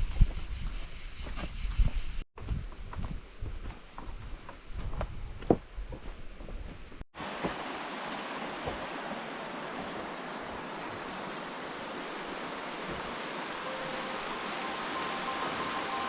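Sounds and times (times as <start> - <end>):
river rushing: 7.2 - 16.0.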